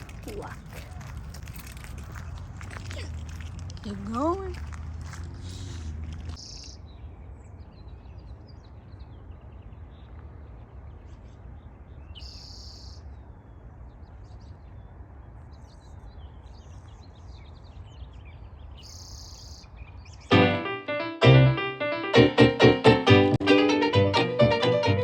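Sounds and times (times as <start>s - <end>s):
small birds chirping: 2.2s - 10.2s, 10.9s - 20.3s.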